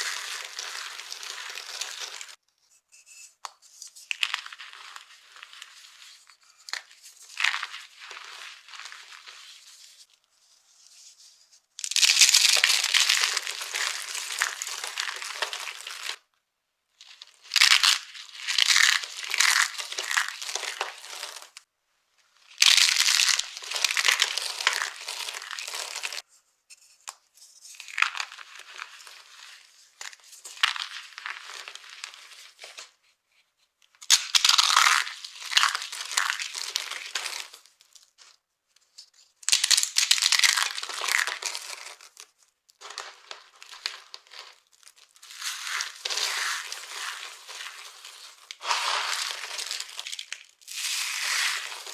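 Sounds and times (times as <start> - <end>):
dry soap crunching: 0.0 - 2.4, 4.1 - 9.7, 11.8 - 16.2, 17.0 - 21.6, 22.5 - 26.2, 27.8 - 32.4, 34.1 - 38.0, 39.4 - 51.9.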